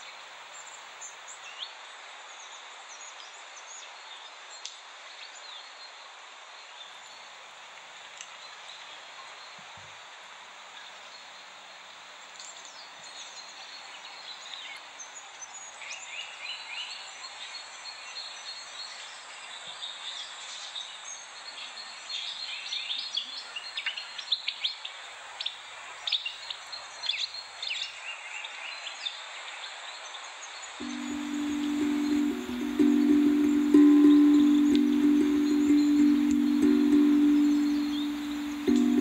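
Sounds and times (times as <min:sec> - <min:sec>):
steady background hiss: 0:30.8 - 0:39.0.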